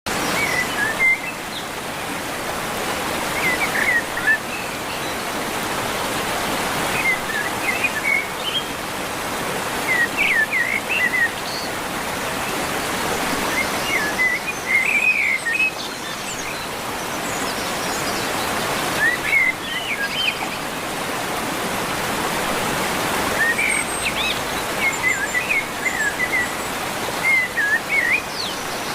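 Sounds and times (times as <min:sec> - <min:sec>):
flowing river water: 0:00.1 - 0:28.9.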